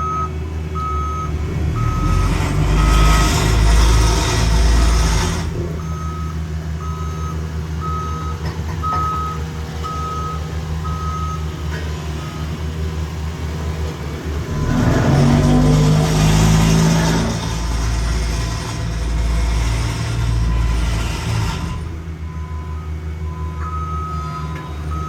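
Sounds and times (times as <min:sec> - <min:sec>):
backup alarm beeping: 0:00.0 - 0:03.2, 0:05.8 - 0:11.6, 0:21.8 - 0:25.0
diesel engine rumble: 0:00.0 - 0:25.0.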